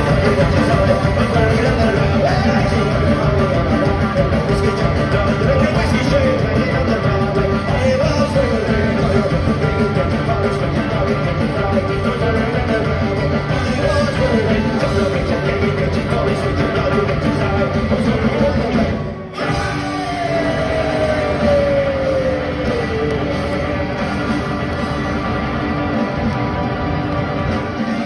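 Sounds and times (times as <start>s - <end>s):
bass and guitars: 0.0s - 28.0s
driving drums: 0.0s - 28.0s.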